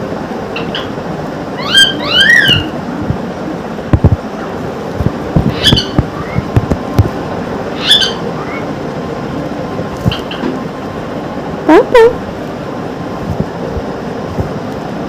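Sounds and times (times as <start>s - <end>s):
parrot squawking: 1.6s - 2.8s, 5.5s - 6.5s, 7.8s - 8.7s.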